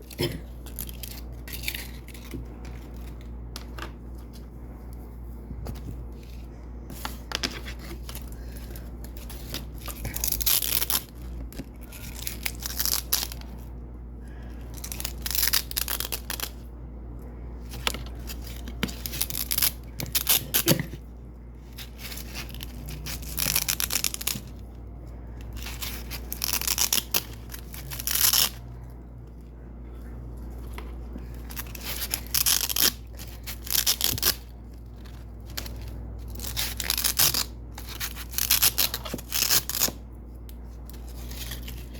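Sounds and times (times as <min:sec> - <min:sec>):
velcro ripping: 0:25.6 - 0:28.6, 0:31.5 - 0:34.5, 0:35.5 - 0:40.0.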